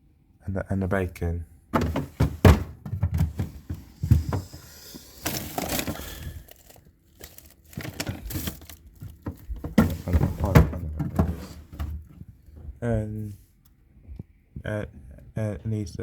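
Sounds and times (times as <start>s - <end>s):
frozen items knocking together: 1.8s - 12.0s
plastic packaging crinkling: 3.1s - 10.0s.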